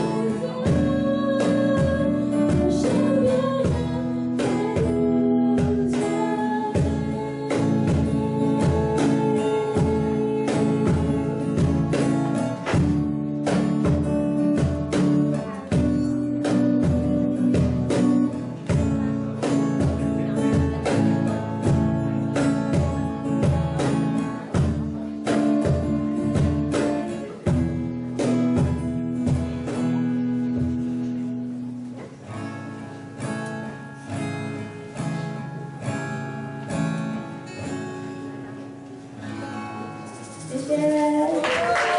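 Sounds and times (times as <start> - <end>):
acoustic guitar: 0.0 - 41.9
drum beat: 0.6 - 29.9.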